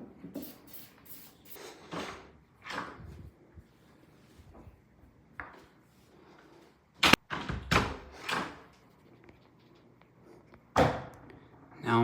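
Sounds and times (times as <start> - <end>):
door being pushed open: 7.0 - 8.7.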